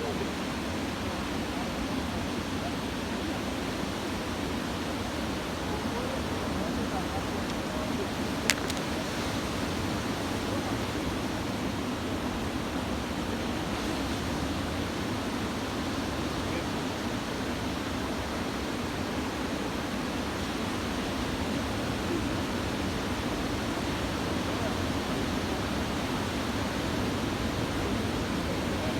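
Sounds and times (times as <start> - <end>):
surf breaking on a beach: 0.0 - 28.9
brief click: 8.5 - 9.0.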